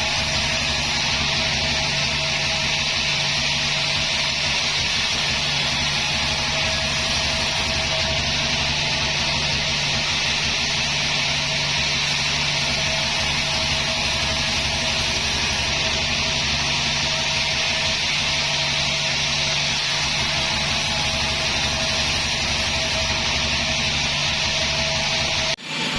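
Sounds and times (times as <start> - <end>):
sawmill machinery droning: 0.0 - 25.9.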